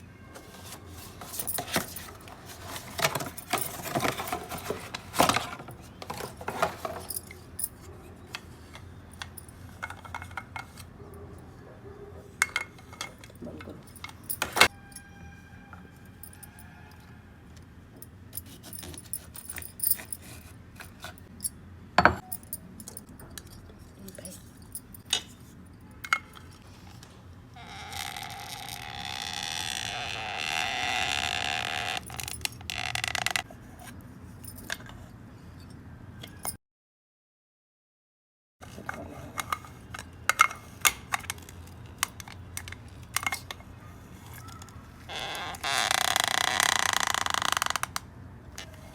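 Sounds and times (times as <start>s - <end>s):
kitchen utensils clinking: 0.4s - 7.9s.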